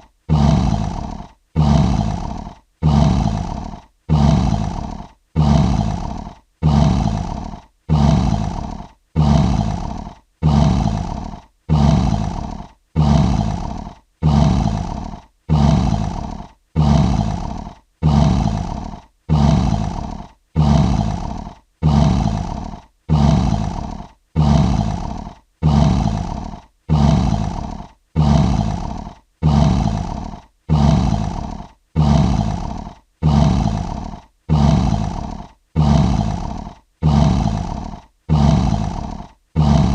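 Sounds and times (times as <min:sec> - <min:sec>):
lion roaring: 0:00.3 - 0:39.9.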